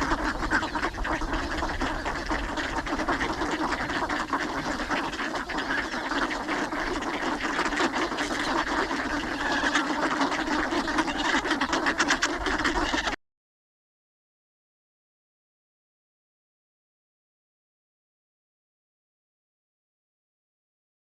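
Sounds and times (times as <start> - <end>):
ducks quacking: 0.0 - 13.2.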